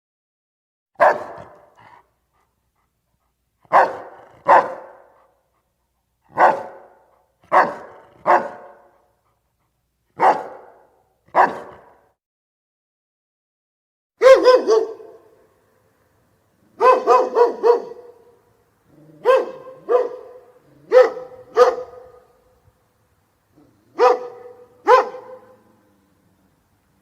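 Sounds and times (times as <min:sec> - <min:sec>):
dog barking: 0:01.0 - 0:02.0, 0:03.7 - 0:05.4, 0:06.3 - 0:09.1, 0:10.2 - 0:12.1, 0:14.2 - 0:15.4, 0:16.7 - 0:18.4, 0:19.0 - 0:22.5, 0:23.6 - 0:25.9.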